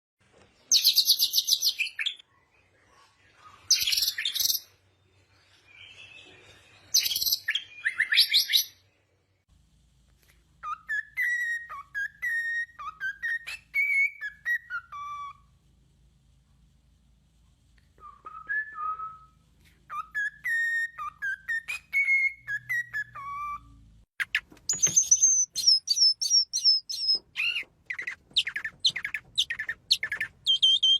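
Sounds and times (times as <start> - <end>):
whistled bird notes: 18.0 - 30.9
high-pitched bird chirping trills: 19.9 - 30.9.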